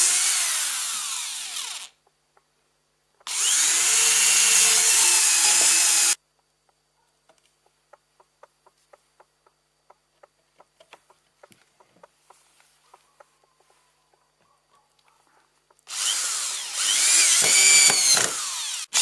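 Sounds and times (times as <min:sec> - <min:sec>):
electric planer whirring: 0:03.3 - 0:06.2, 0:15.9 - 0:19.0.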